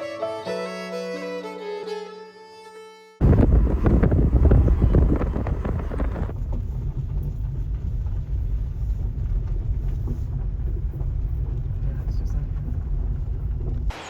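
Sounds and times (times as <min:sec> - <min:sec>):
car rumble: 0:03.2 - 0:13.9.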